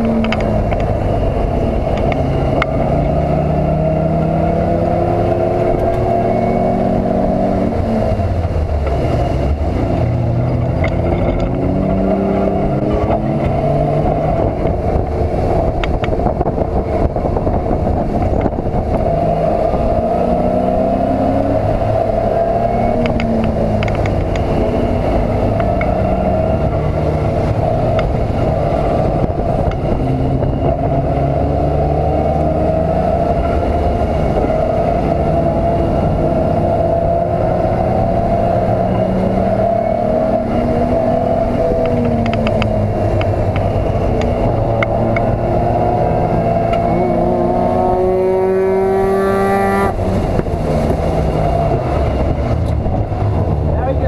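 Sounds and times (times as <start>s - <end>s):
race car engine revving: 0.0s - 54.0s
road and wind noise: 0.0s - 54.0s.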